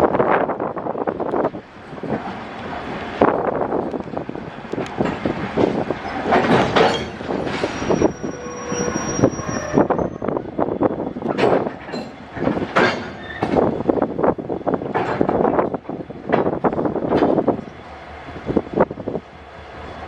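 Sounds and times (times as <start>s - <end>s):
train wagons rattling and clanking: 0.0s - 20.0s
thin high squeal: 7.6s - 10.3s.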